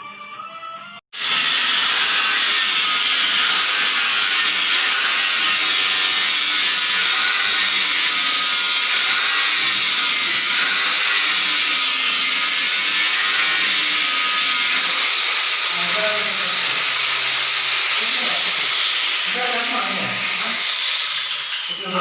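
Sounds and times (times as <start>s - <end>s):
power tool whirring on wood: 1.2s - 22.0s.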